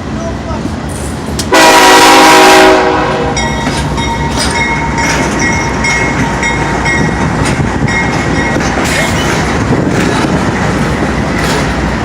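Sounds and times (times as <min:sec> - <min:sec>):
locomotive air horn blast: 0:01.5 - 0:03.4
train wheels clicking over rail joints: 0:03.3 - 0:12.0.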